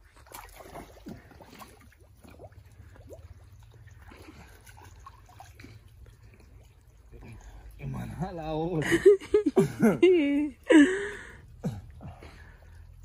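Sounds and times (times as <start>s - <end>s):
water drips and plops: 0.0s - 8.8s
water trickling: 0.0s - 13.0s.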